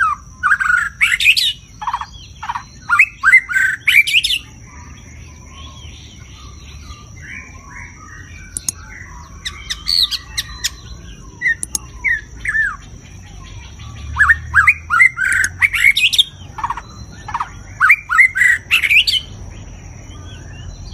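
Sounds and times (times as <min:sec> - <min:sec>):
bird whistling and clicking: 0:08.5 - 0:08.9, 0:11.5 - 0:12.3, 0:15.0 - 0:16.8.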